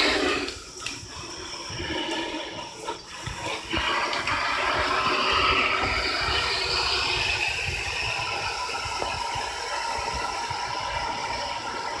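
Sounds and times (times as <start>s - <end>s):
water rushing through rain gutter: 0.0s - 12.0s.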